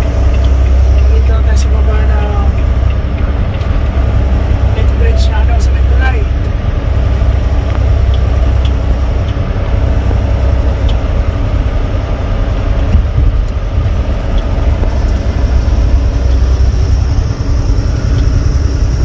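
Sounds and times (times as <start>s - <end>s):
diesel truck engine rumble: 0.0s - 19.0s
road noise: 0.0s - 19.0s
faint ticks: 0.2s - 1.4s.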